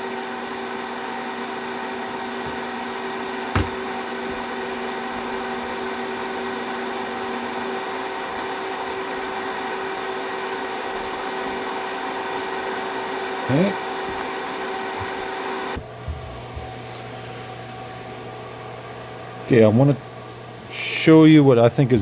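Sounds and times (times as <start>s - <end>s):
cooling fan humming: 0.0s - 22.0s.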